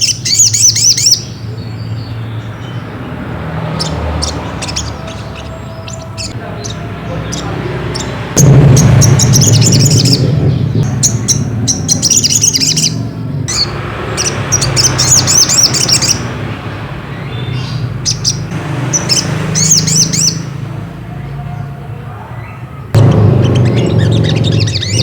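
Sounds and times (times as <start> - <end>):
bird twittering chirps: 0.0 - 20.8, 22.4 - 25.0
steady low hum: 23.0 - 25.0.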